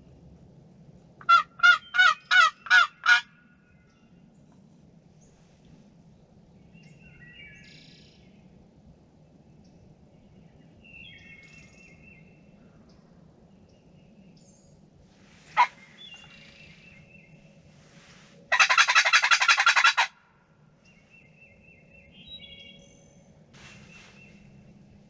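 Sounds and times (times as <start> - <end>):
songbirds chirping: 0.0 - 25.0.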